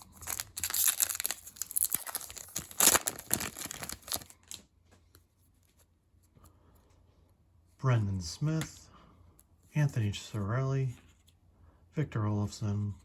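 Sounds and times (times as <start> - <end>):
card pack wrapper tearing: 0.0 - 4.6
wrapper crinkling: 0.0 - 4.6.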